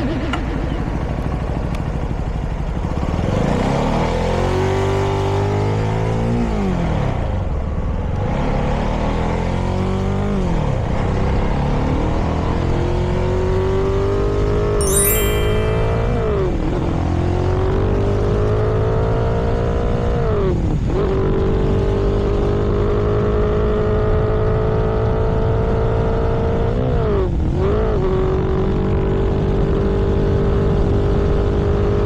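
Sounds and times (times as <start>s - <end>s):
road and wind noise: 0.0s - 14.6s, 16.0s - 32.0s
brief high chirp: 14.8s - 16.5s.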